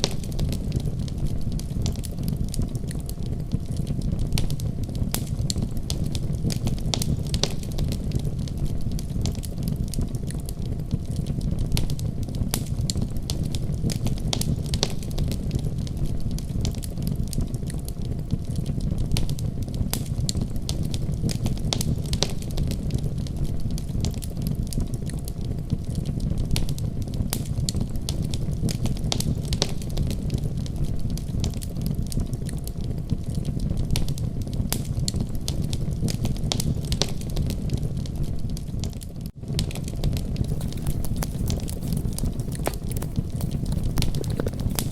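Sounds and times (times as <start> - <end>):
fire pops and snaps: 40.4 - 44.9.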